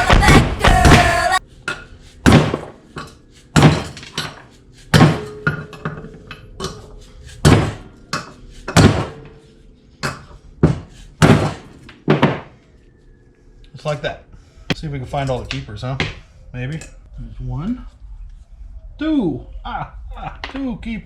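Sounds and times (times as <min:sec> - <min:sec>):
hammer striking metal: 0:00.0 - 0:12.5.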